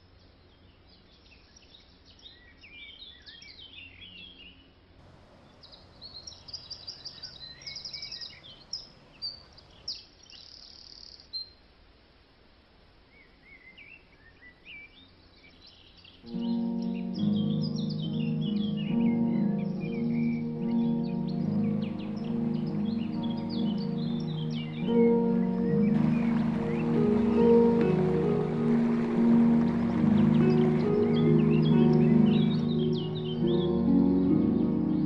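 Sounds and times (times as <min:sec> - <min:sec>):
faint background noise: 0:00.0 - 0:35.0
birds chirping and singing: 0:05.2 - 0:11.2, 0:13.6 - 0:35.0
bird buzzing call: 0:19.3 - 0:33.6.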